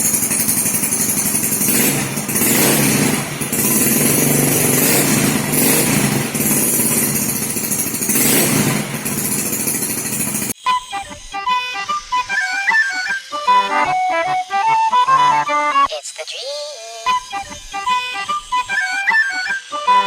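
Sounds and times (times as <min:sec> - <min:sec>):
scooter engine revving: 0:00.0 - 0:10.6.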